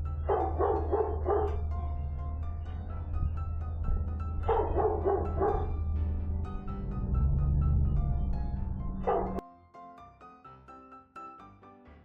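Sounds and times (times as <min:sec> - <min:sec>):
background music: 0:00.0 - 0:12.0
dog barking: 0:00.2 - 0:01.7, 0:04.4 - 0:05.8, 0:09.0 - 0:09.4.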